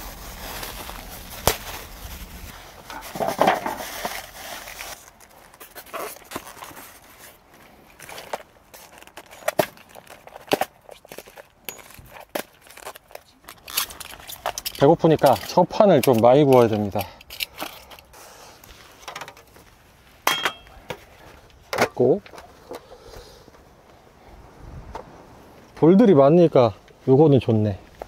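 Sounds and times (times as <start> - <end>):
salt rustling hiss: 0.0 - 2.9.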